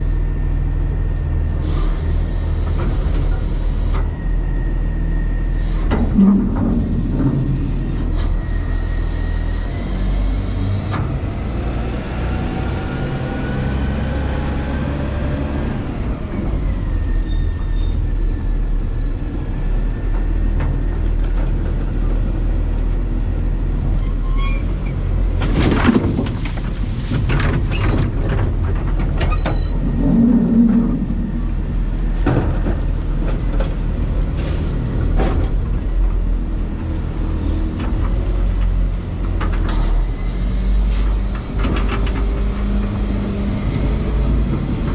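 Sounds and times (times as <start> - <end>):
garbage truck engine drone: 0.0 - 44.9
sliding whines: 4.1 - 10.9, 29.2 - 32.2
metal clanks and knocks: 5.9 - 8.6.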